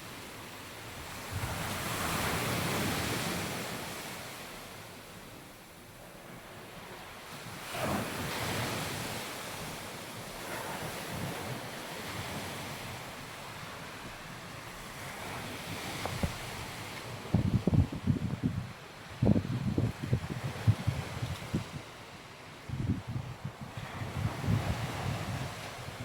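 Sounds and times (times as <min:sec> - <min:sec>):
waves breaking on beach: 0:00.0 - 0:26.0
wind on microphone: 0:14.9 - 0:26.0.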